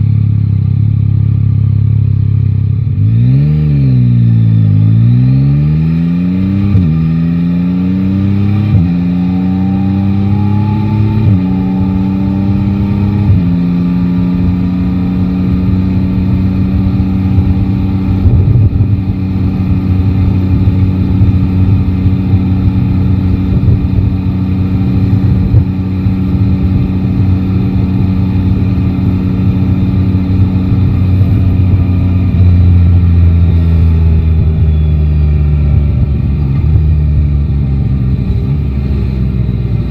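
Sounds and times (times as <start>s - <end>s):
motorcycle engine accelerating: 0.0s - 39.9s
road noise: 0.0s - 39.9s
wind noise: 8.2s - 39.9s.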